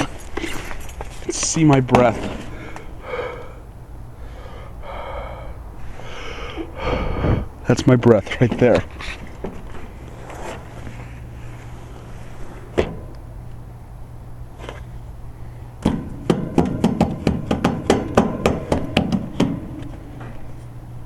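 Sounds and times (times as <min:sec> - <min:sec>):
steady low hum: 0:00.0 - 0:21.0
sharp knocks: 0:15.8 - 0:20.3.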